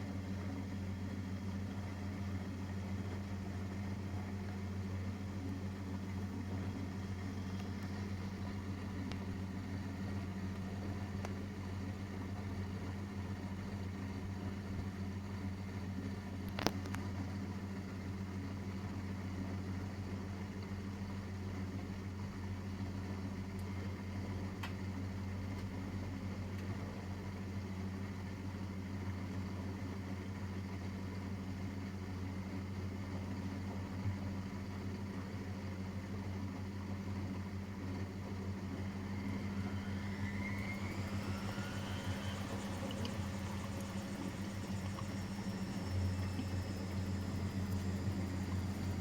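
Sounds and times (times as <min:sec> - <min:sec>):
washing machine humming: 0:00.0 - 0:16.4, 0:36.9 - 0:49.0
motor whine rising: 0:06.4 - 0:11.5, 0:37.6 - 0:49.0.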